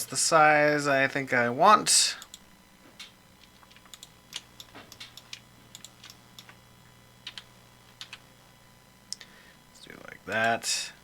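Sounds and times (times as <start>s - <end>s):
faint low hum: 0.0s - 11.0s
computer keyboard and mouse clicking: 3.0s - 6.6s, 7.2s - 8.2s, 10.3s - 10.6s.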